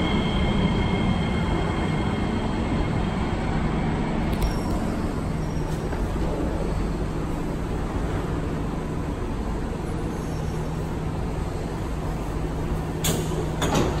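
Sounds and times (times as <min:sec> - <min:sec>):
train equipment humming: 0:00.0 - 0:14.0
train doors opening: 0:04.3 - 0:08.4, 0:11.4 - 0:14.0.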